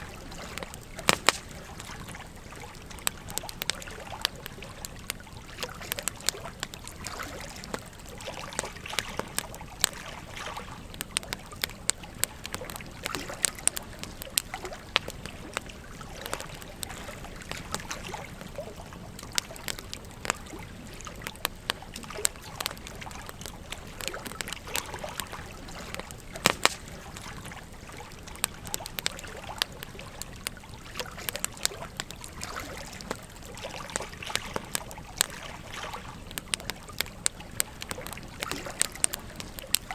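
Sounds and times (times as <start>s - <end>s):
stream flowing: 0.0s - 21.3s
campfire crackling and popping: 0.0s - 39.9s.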